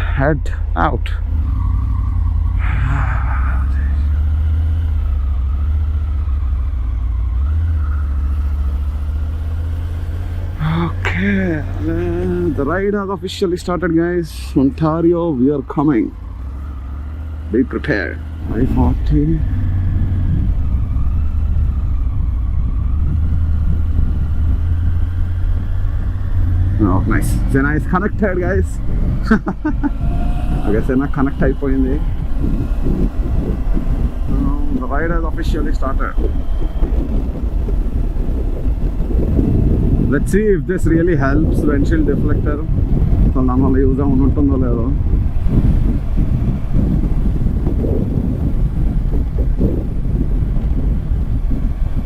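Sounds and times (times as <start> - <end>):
motorcycle engine rumble: 0.0 - 52.0
wind rush: 1.4 - 5.4, 18.2 - 52.0.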